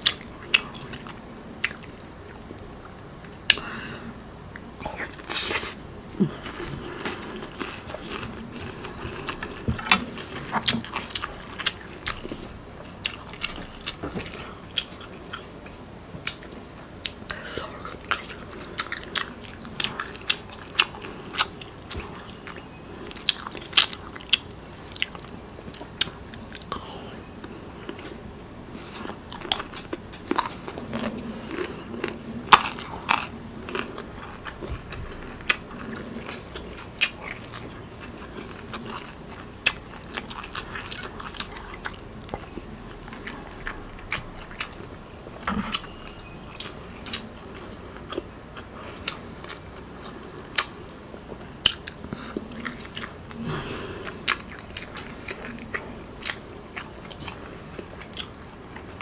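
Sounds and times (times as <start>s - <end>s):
chewing and eating: 0.0s - 59.0s.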